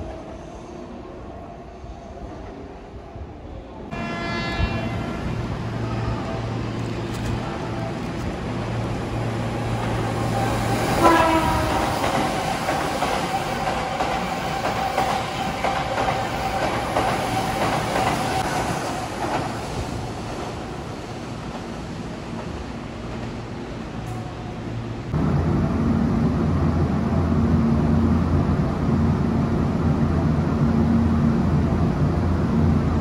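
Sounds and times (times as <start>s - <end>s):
train whine: 0.0s - 33.0s
train horn blast: 3.9s - 6.4s, 11.0s - 12.0s.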